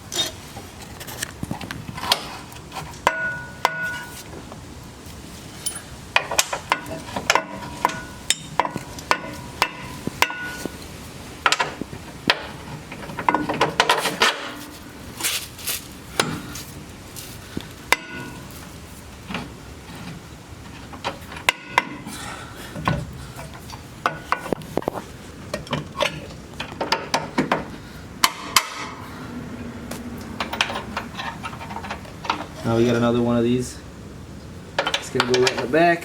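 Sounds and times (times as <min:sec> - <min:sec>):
metal clanks and knocks: 0:01.6 - 0:04.2, 0:05.6 - 0:10.8, 0:11.4 - 0:14.7, 0:16.2 - 0:16.5, 0:17.9 - 0:22.1, 0:22.7 - 0:24.9, 0:25.5 - 0:29.0, 0:30.4 - 0:33.0, 0:34.8 - 0:35.8.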